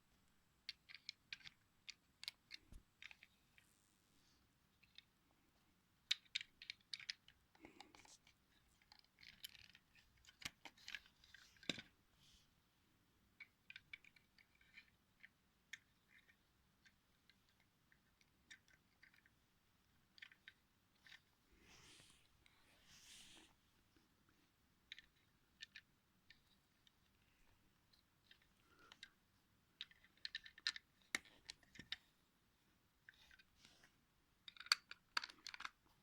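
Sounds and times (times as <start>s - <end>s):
faint small clicks and ticks: 0.1s - 3.7s, 6.0s - 12.0s, 13.3s - 21.4s, 24.3s - 32.2s, 33.0s - 36.0s.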